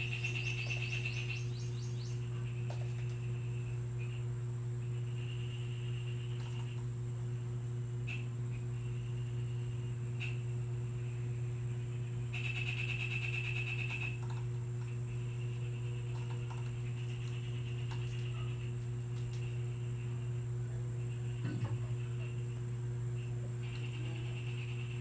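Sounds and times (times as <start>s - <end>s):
small bird chattering: 0.0s - 2.2s
low electrical hum: 0.0s - 25.0s.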